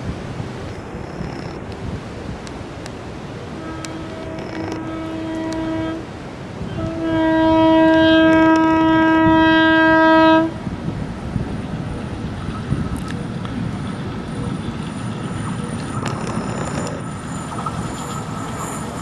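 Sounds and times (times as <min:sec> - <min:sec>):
passing train rumble: 0:00.0 - 0:19.0
locomotive horn blasts: 0:03.3 - 0:13.2.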